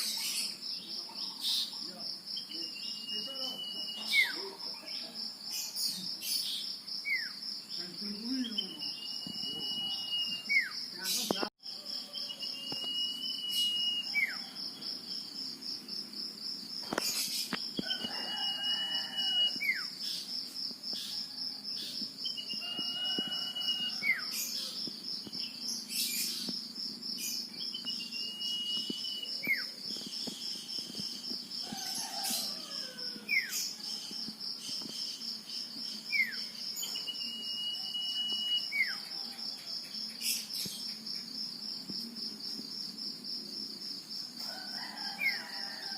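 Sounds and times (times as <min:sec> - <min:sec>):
insect trill: 0:00.0 - 0:45.9
bird whistling song: 0:02.4 - 0:04.4, 0:08.4 - 0:11.2, 0:12.2 - 0:14.4, 0:27.6 - 0:30.6, 0:36.2 - 0:39.0.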